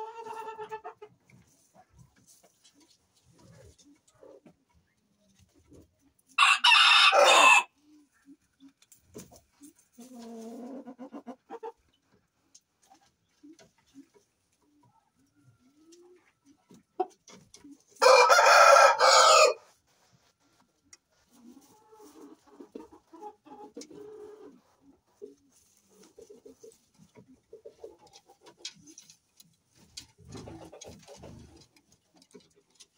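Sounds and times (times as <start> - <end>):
rooster crowing: 6.4 - 7.7, 18.0 - 19.6
soft clucking calls: 20.9 - 32.9.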